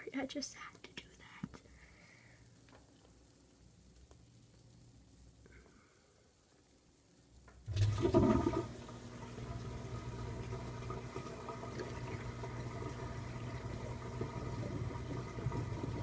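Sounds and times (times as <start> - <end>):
washing machine pump humming: 7.6 - 16.0
water rushing and gurgling: 7.7 - 16.0.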